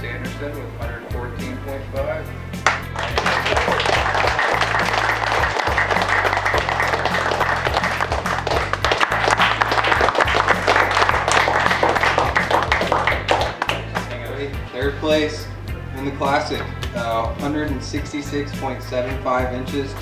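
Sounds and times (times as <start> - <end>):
background music with bass line: 0.0 - 20.0
crowd applauding: 2.6 - 14.4.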